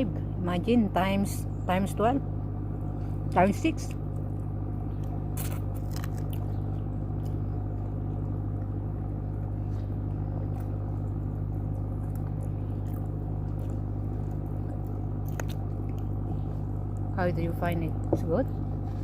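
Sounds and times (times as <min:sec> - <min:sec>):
steady low hum: 0:00.0 - 0:19.0
faint eating clicks: 0:03.9 - 0:17.2.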